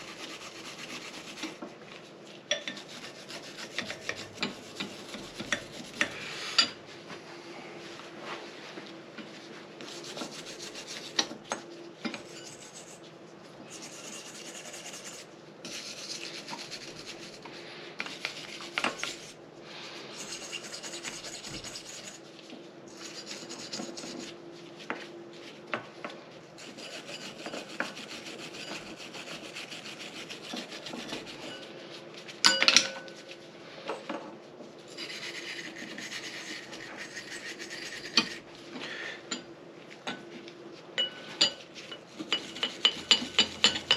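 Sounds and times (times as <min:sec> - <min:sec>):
hand scrubbing strokes: 0:00.0 - 0:06.6, 0:09.4 - 0:11.2, 0:13.7 - 0:22.3, 0:26.6 - 0:32.4, 0:34.8 - 0:38.5.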